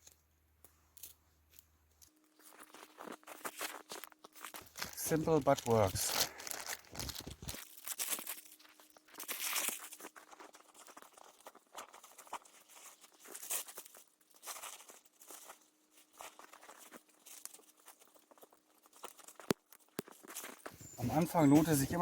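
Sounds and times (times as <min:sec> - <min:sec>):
campfire crackling and popping: 0:03.2 - 0:08.3.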